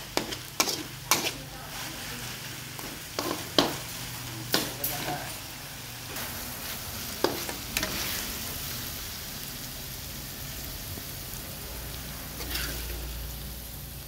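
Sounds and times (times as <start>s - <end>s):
metal spatula scraping wok: 0.0s - 5.5s, 6.1s - 8.7s, 12.2s - 13.3s
food sizzling in wok: 0.0s - 14.0s.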